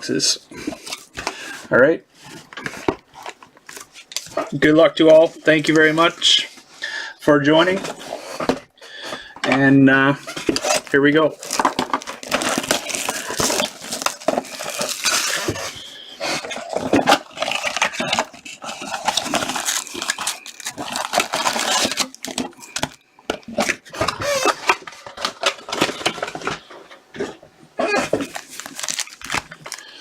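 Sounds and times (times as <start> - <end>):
cards rustling and clicking: 10.2 - 26.7, 28.1 - 30.0
plastic wrap crinkling and tearing: 10.2 - 26.7, 27.8 - 30.0.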